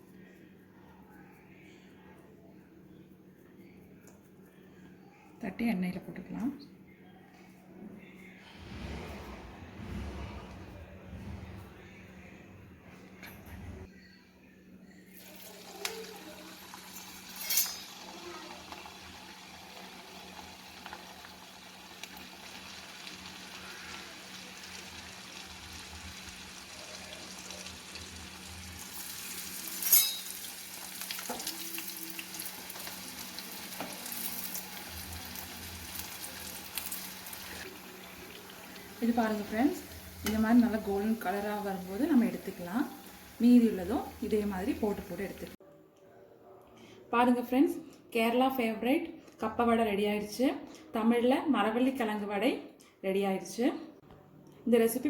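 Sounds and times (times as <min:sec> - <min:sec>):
patties sizzling in hot oil: 0:15.2 - 0:45.6.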